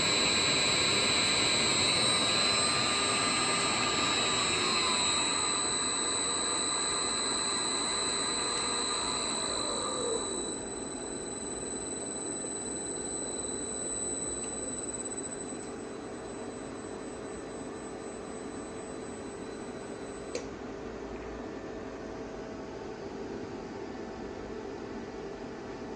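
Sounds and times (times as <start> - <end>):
high-pitched electrical whine: 0.0 - 20.7.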